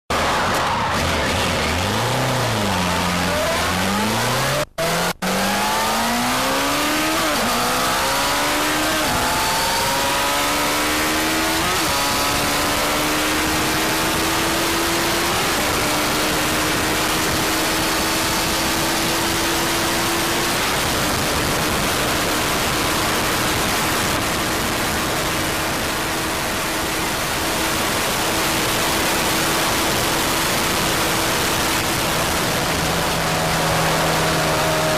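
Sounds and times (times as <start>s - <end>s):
motorcycle engine accelerating: 0.1s - 34.9s
wind rush on microphone: 7.2s - 34.9s.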